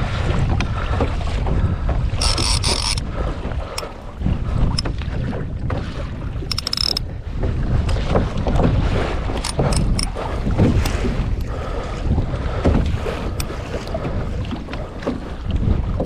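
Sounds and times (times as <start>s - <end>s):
water sloshing against kayak hull: 0.0s - 16.0s
wind buffeting microphone: 0.0s - 16.0s
short clicks and rattles: 2.2s - 3.0s, 3.8s - 4.1s, 6.5s - 7.1s, 9.4s - 10.2s.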